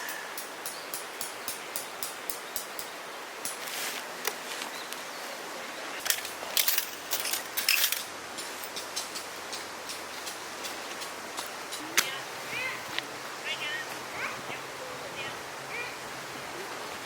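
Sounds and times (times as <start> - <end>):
steady outdoor hiss: 0.0 - 17.0
clicks and metallic clinks: 6.0 - 11.1.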